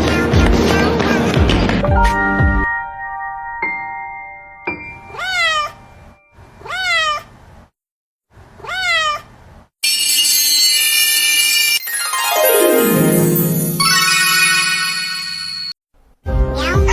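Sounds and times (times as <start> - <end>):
cat meowing: 5.1 - 5.8, 6.6 - 7.3, 8.6 - 9.3
ringing tone: 9.8 - 15.8.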